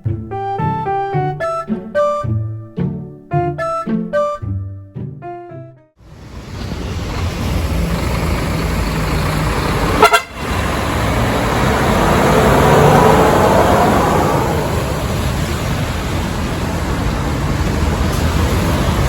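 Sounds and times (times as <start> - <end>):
diesel truck passing: 6.0 - 19.0
truck horn toot: 9.8 - 11.0.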